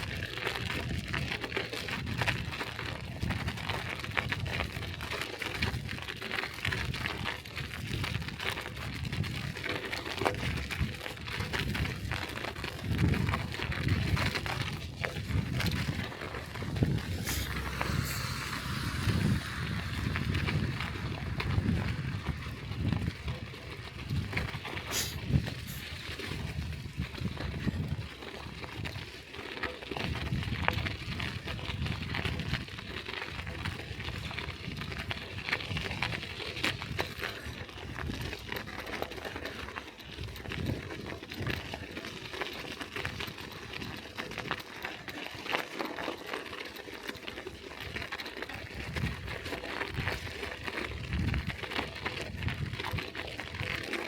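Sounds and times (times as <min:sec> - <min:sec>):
bicycle clicks and rattles: 0:00.0 - 0:54.0
bicycle tyres rumbling on snow: 0:00.0 - 0:54.0
steady low rumble: 0:14.7 - 0:26.0.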